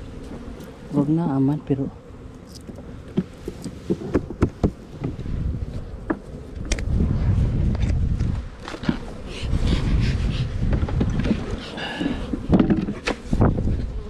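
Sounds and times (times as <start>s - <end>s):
honeybees buzzing: 0.0s - 14.0s
knocks and clicks of hive equipment: 2.6s - 5.3s, 12.3s - 13.2s.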